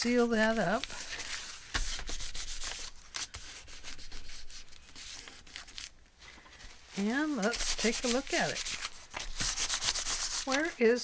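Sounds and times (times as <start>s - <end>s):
hands rubbing on paper: 0.8s - 5.5s, 7.0s - 10.8s.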